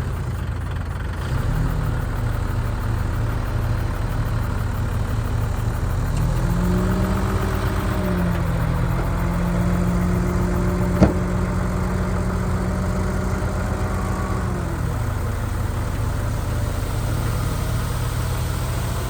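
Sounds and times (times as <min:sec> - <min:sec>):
heavy diesel machinery rumbling: 0:00.0 - 0:19.0
sharp knock: 0:11.0 - 0:11.4.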